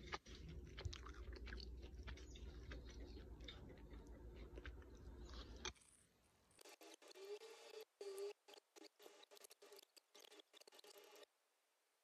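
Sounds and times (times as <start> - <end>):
chewing crisp fried food: 0.0 - 5.9.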